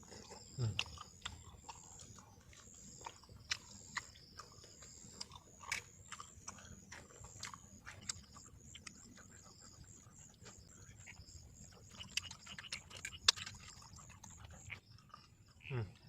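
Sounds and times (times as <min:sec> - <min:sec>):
insects chirring: 0:00.0 - 0:16.0
person chewing food: 0:00.0 - 0:16.0.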